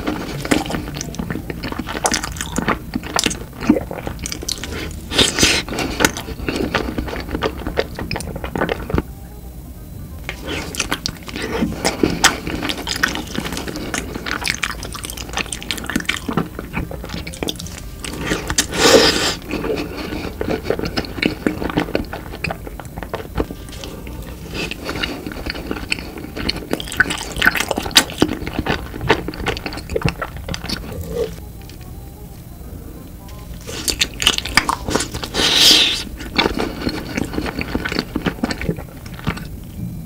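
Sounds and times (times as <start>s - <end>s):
wet chewing: 0.0s - 9.1s, 10.2s - 31.9s, 33.6s - 39.8s.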